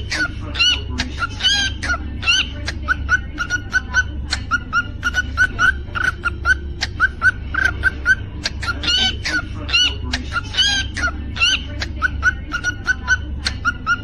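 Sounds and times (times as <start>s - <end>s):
cockatiel chirping: 0.0s - 14.0s
cockatiel whistled notes: 3.4s - 9.2s.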